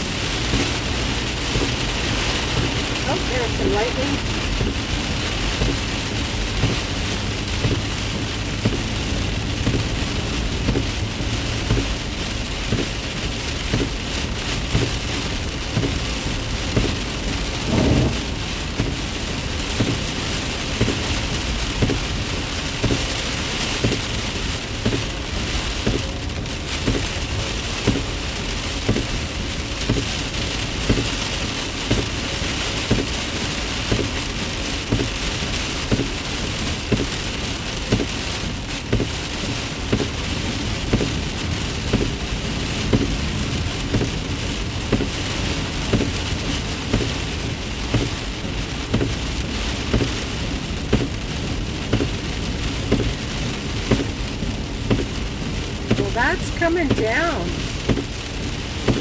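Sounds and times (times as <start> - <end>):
heavy rain on a car: 0.0 - 59.0
road noise: 0.0 - 59.0
low thump: 17.5 - 18.6.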